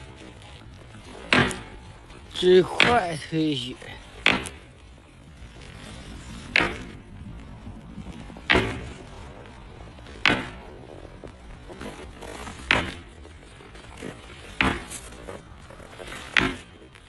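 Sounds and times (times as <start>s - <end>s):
sharp knocks: 1.2s - 1.8s, 10.2s - 10.6s, 14.6s - 14.9s.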